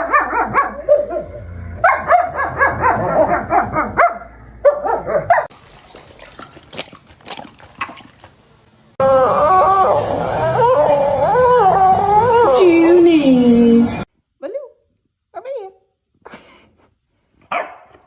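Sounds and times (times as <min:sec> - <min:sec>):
dog yapping: 0:00.0 - 0:05.5.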